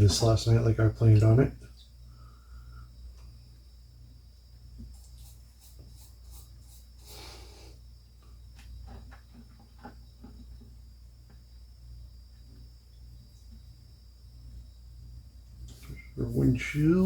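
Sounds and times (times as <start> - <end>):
steady low hum: 0.0 - 17.0
short hiss: 5.1 - 7.8.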